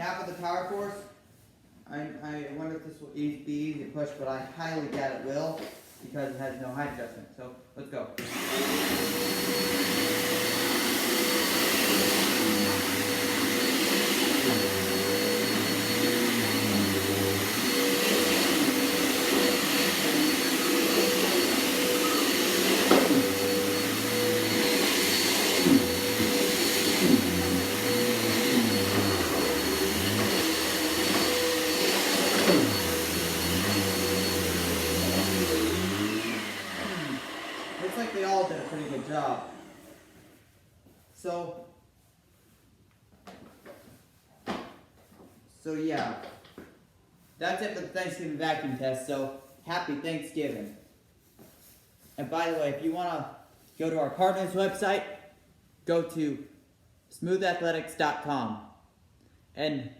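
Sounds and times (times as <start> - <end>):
vacuum cleaner motor whine: 8.2 - 40.4.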